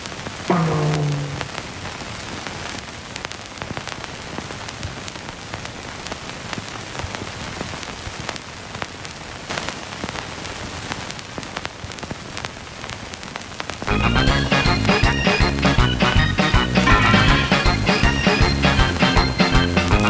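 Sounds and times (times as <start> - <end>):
steady rain-like hiss: 0.0 - 20.0
sharp ticks and crackles: 1.4 - 13.9.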